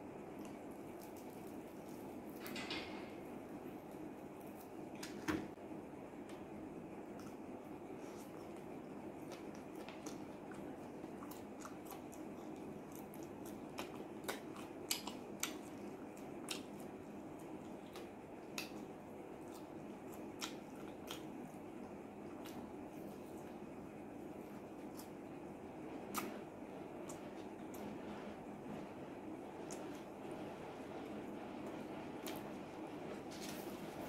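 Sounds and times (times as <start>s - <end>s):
person chewing: 7.1s - 23.4s
wet mouth clicks and smacks: 26.1s - 26.3s.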